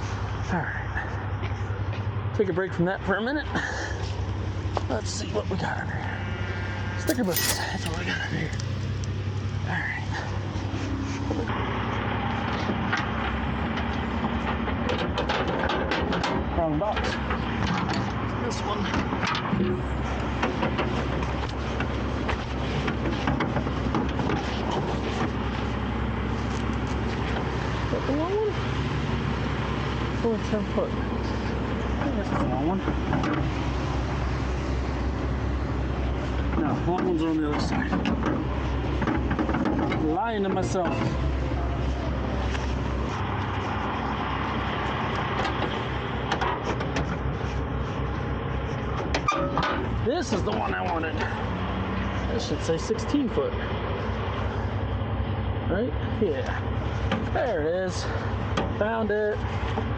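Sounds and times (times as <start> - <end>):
metallic clinks and rattles: 7.1 - 9.2.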